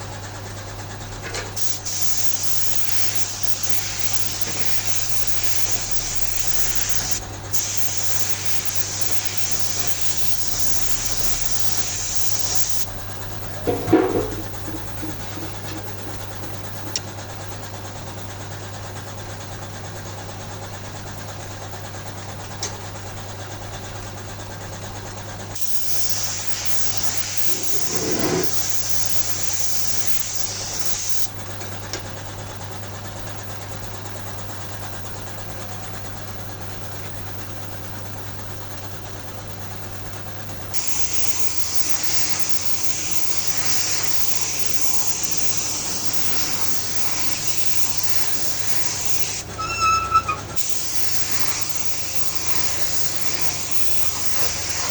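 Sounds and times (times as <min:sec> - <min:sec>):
steady mechanical hum: 0:00.0 - 0:54.9
high hissing: 0:01.6 - 0:17.0, 0:25.6 - 0:31.3, 0:40.7 - 0:54.9.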